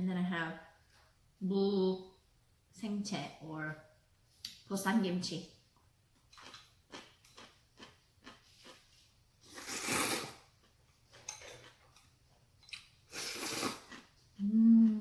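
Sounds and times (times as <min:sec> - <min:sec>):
noisy eating bursts: 0:06.4 - 0:10.8, 0:13.1 - 0:15.0.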